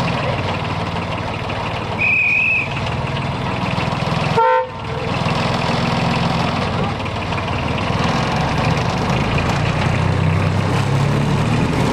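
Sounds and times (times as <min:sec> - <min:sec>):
diesel railway engine running: 0:00.0 - 0:11.9
high-pitched whistle toot: 0:02.0 - 0:02.7
train horn toot: 0:04.4 - 0:04.9.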